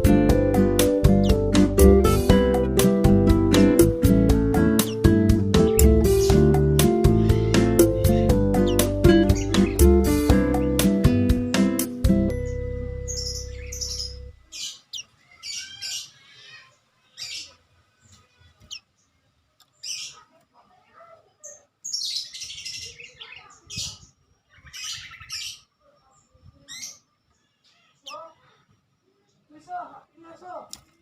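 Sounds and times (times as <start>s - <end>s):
acoustic guitar chord strummed: 0.0s - 14.4s
songbird chirping and trilling: 0.0s - 31.0s.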